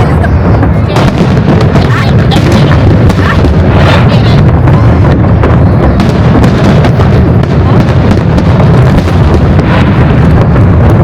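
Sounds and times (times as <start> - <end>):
fireworks bangs and crackles: 0.0 - 11.0
fireworks booming: 0.0 - 11.0.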